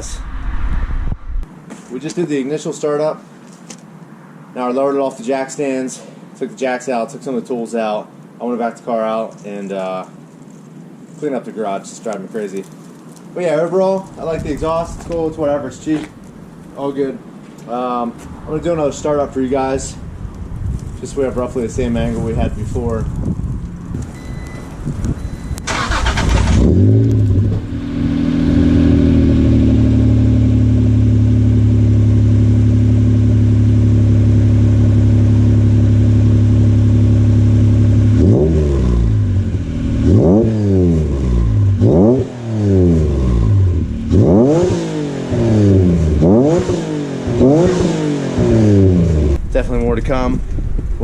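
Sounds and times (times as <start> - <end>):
car engine idling: 21.2 - 40.3
engine revving: 25.6 - 49.4.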